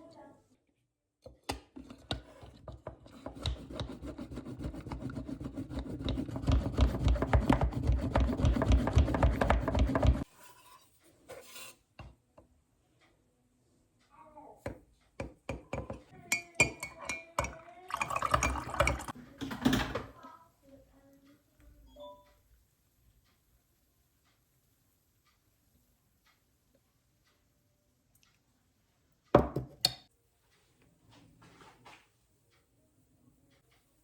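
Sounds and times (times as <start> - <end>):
rubbing and scraping food preparation: 1.7 - 11.9
kitchenware clicks and clink: 15.7 - 20.2.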